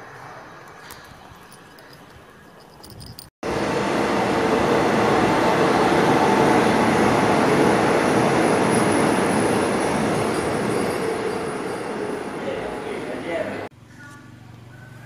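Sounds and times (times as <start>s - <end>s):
train wheels rumbling on rails: 2.8s - 13.7s.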